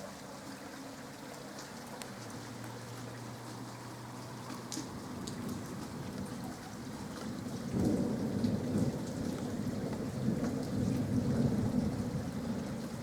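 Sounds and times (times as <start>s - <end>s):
water drips: 0.0s - 11.0s
rain falling: 0.0s - 13.0s
thunder rumbling: 7.6s - 12.7s.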